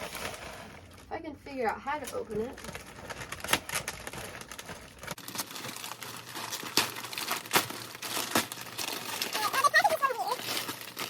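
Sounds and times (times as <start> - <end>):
packaging crinkling and tearing: 2.4 - 11.0.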